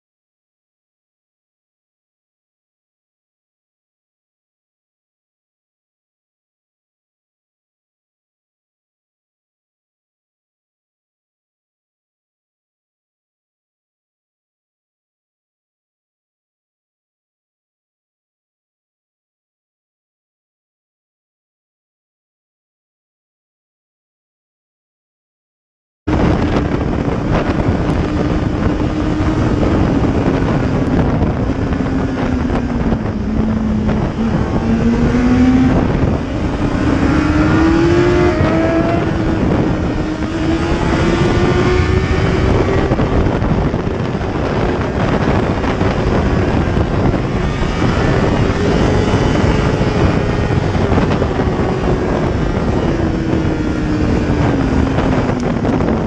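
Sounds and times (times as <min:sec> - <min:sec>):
car engine: 0:26.1 - 0:56.0
road noise: 0:26.1 - 0:56.0.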